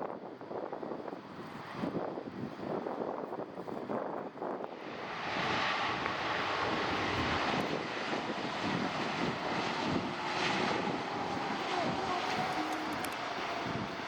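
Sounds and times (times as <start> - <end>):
jet airliner engines rushing: 0.1 - 14.0
faint engine whine: 4.6 - 14.0.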